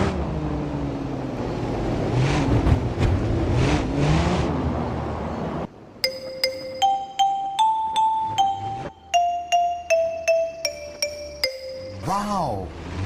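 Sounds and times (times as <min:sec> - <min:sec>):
bright xylophone-like notes: 0:06.0 - 0:12.5
vehicle engine revving: 0:12.7 - 0:13.0.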